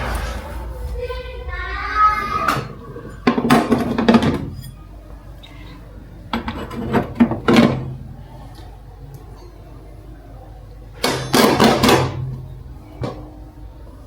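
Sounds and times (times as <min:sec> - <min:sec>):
household items clattering: 0:02.6 - 0:04.8.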